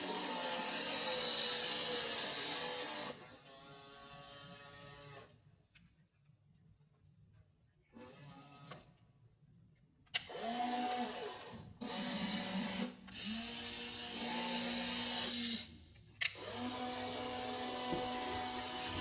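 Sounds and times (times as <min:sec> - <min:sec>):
electric gear motors whining: 0:16.4 - 0:19.0.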